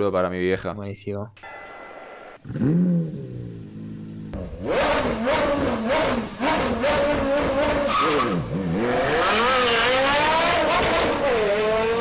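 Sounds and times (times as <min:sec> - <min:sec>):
car engine revving hard: 0:02.4 - 0:12.0.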